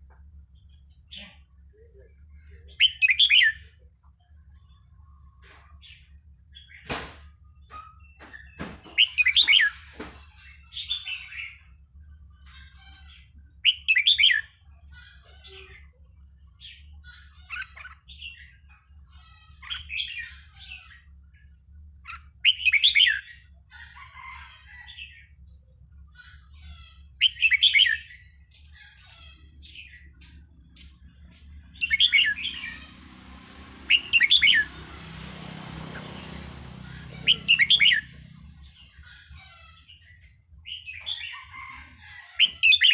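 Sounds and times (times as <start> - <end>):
bird warbling song: 25.0 - 42.9.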